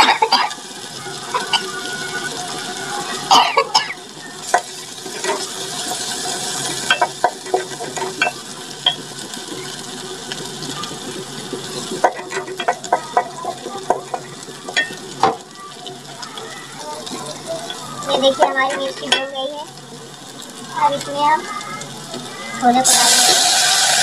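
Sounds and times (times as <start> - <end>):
chillies sizzling in hot oil: 0.0 - 24.0
wooden spoon scraping a pot: 4.6 - 6.1.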